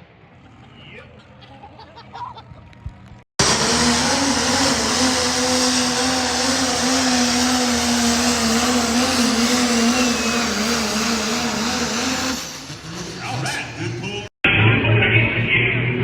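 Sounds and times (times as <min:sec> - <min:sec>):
truck engine running hard: 0:03.4 - 0:14.3.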